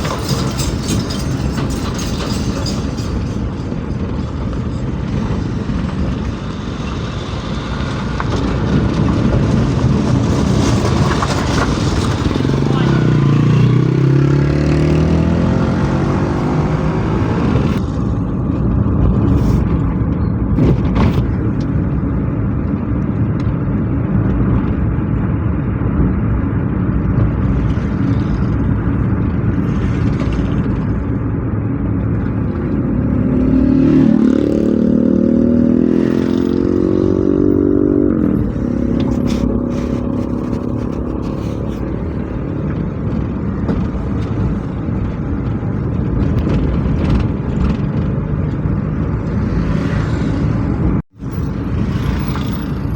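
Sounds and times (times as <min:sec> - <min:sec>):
vehicle engines running: 0:00.0 - 0:52.9
engine revving with rising pitch: 0:12.1 - 0:17.8, 0:32.9 - 0:41.0.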